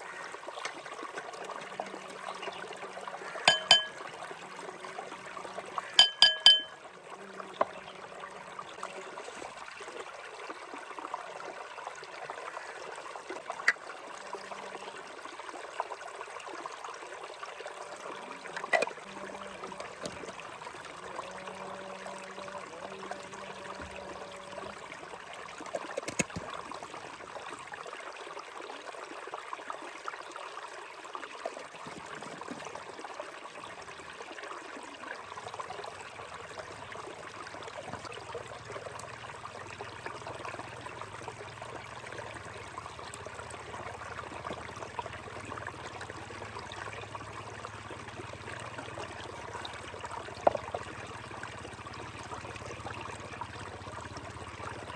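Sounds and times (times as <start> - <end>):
water trickling: 0.0 - 54.9
ringing clinks of metal or glass: 3.5 - 4.0, 6.0 - 6.8.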